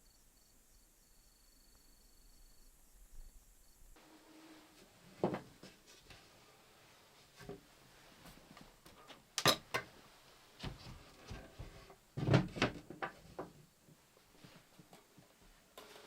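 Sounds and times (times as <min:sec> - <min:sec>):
knocks and thump: 0:11.6 - 0:13.5.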